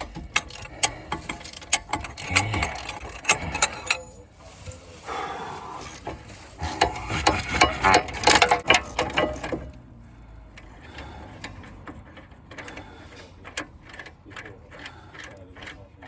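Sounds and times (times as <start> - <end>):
ratchet wrench clicking: 0.0 - 4.2.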